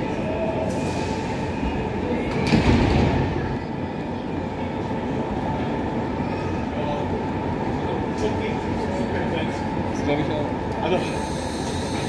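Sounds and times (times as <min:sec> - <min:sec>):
train running noise: 0:00.0 - 0:12.0.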